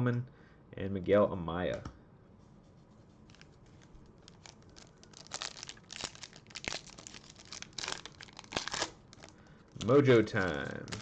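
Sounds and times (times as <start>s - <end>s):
wrapper crinkling and tearing: 3.2s - 11.0s.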